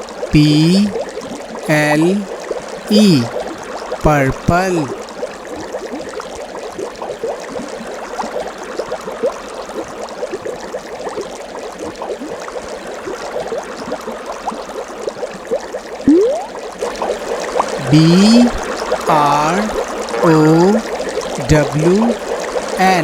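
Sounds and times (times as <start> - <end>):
water bubbling and gurgling: 16.1 - 16.6.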